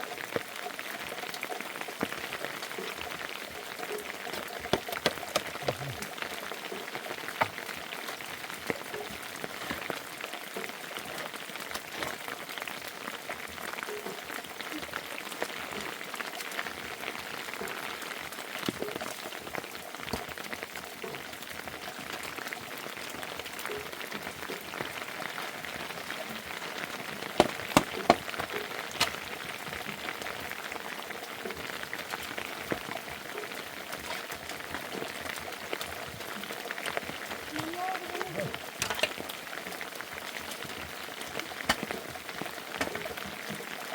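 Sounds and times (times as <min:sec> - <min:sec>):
rain pattering: 0:00.0 - 0:43.9
sharp knocks: 0:27.4 - 0:29.2.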